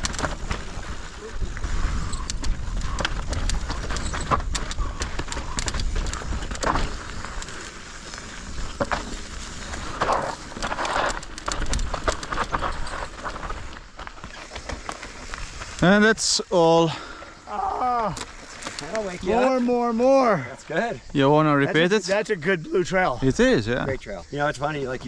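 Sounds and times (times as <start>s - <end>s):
mountain bike rattling on trail: 0.0s - 15.8s.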